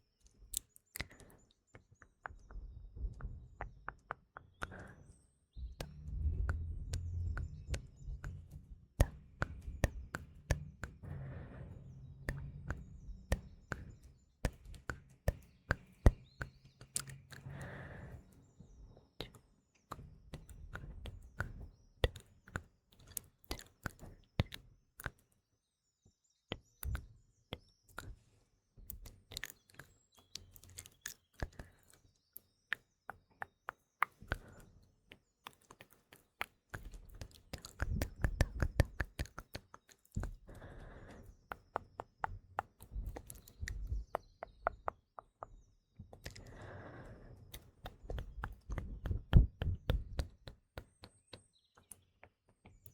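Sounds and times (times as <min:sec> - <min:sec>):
faint birdsong: 0:00.0 - 0:52.9
wet mouth clicks and smacks: 0:00.5 - 0:01.4, 0:05.8 - 0:11.4, 0:12.3 - 0:18.0, 0:19.2 - 0:25.2, 0:28.9 - 0:32.0, 0:32.7 - 0:44.9, 0:46.1 - 0:51.0.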